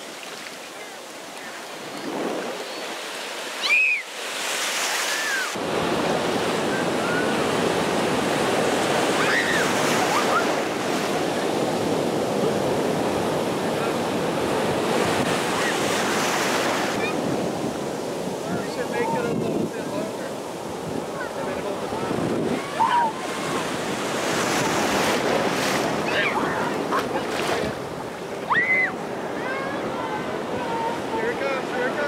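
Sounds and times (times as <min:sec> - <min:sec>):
ocean surf breaking: 0:00.0 - 0:32.0
child squealing: 0:03.6 - 0:04.1, 0:05.1 - 0:05.6, 0:09.2 - 0:10.6, 0:22.6 - 0:23.2, 0:28.5 - 0:29.8
wind on microphone: 0:05.3 - 0:30.9
faint children's cries: 0:09.2 - 0:10.6.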